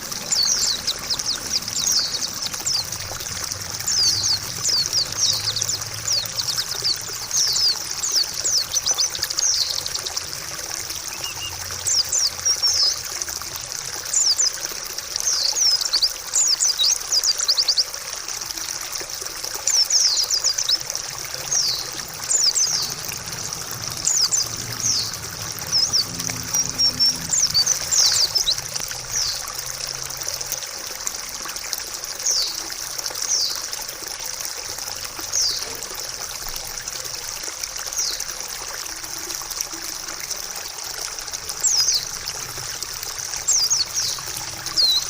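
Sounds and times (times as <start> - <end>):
birds chirping: 0.0 - 17.9, 19.6 - 29.6, 35.2 - 35.9, 41.5 - 45.0
water trickling: 0.0 - 45.0.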